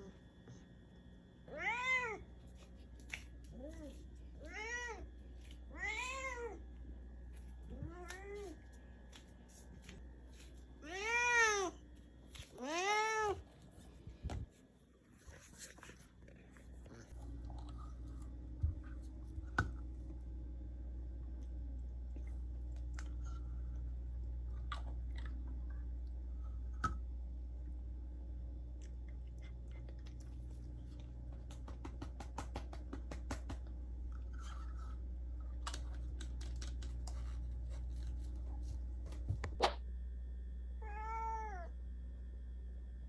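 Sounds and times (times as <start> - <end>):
cat chewing and licking: 15.2 - 20.3, 21.1 - 26.7, 28.6 - 38.8
cat meowing: 40.8 - 41.7.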